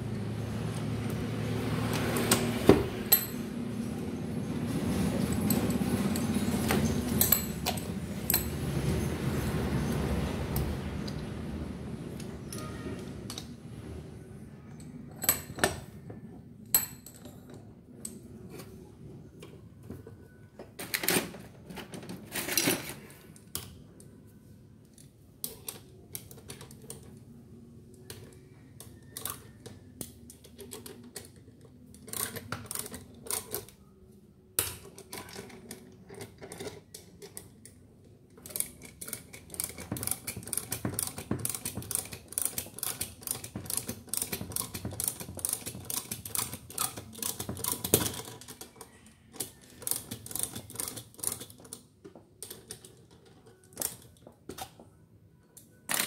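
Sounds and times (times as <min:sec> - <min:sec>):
metallic clicks and rattles of tools: 0:05.0 - 0:09.0, 0:34.6 - 0:54.8.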